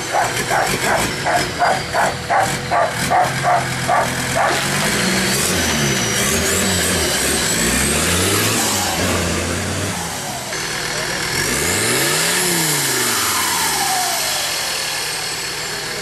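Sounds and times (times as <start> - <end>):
dog barking rapidly: 0.0 - 4.7
engine revving: 0.0 - 16.0.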